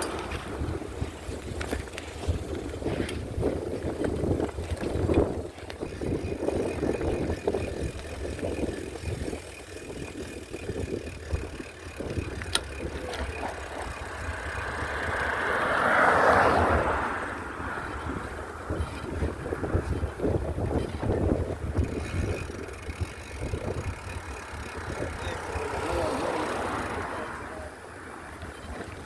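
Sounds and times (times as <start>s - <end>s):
wind buffeting microphone: 0.0s - 29.0s
clicks: 4.7s - 15.6s, 21.8s - 27.2s.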